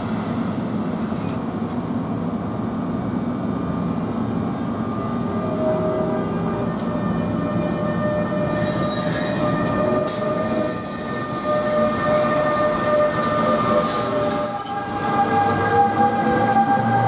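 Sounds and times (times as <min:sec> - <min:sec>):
train wheels squealing: 0:06.4 - 0:17.0.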